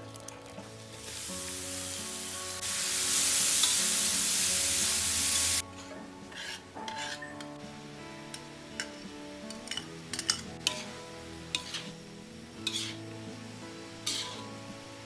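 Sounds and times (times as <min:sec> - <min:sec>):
food sizzling in a wok: 0:00.6 - 0:05.6, 0:06.3 - 0:15.0
spatula clicking on pan: 0:09.5 - 0:10.9, 0:11.6 - 0:11.8.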